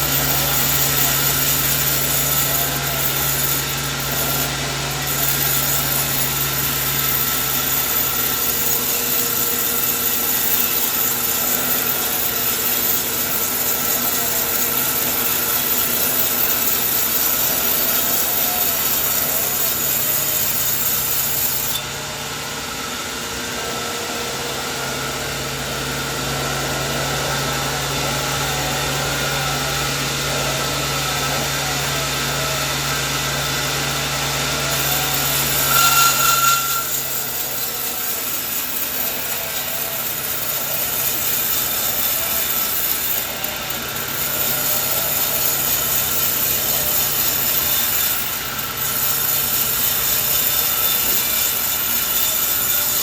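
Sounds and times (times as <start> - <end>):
saw blade cutting wood: 0.0 - 21.9, 34.5 - 53.0.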